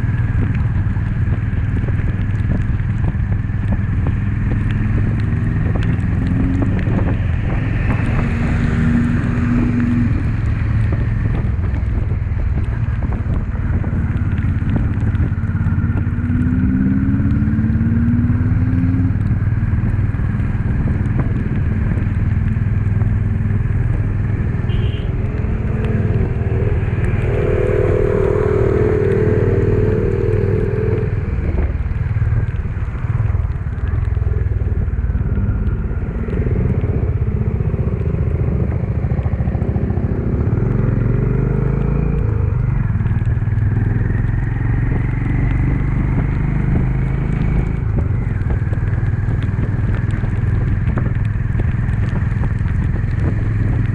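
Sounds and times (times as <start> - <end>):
motorcycle engine droning: 20.4 - 53.9
short rising tones: 24.3 - 32.2
high steady tone: 24.7 - 32.0.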